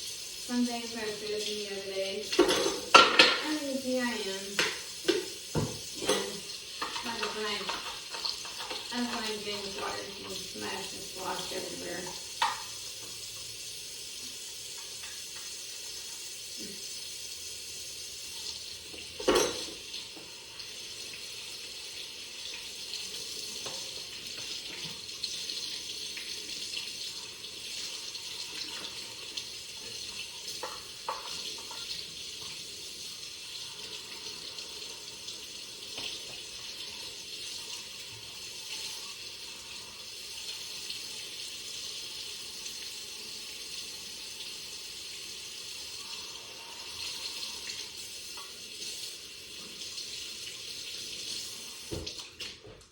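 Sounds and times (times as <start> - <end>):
tap water splashing in sink: 0.5 - 13.5, 14.2 - 16.0, 18.3 - 39.0, 47.0 - 52.9
dishes clinking: 2.3 - 3.6, 4.6 - 9.3, 19.1 - 19.9.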